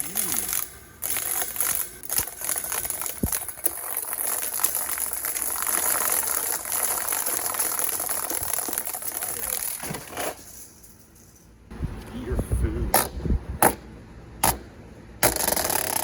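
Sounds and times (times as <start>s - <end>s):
table fan rattling air rush: 0.0s - 11.4s, 15.2s - 16.0s.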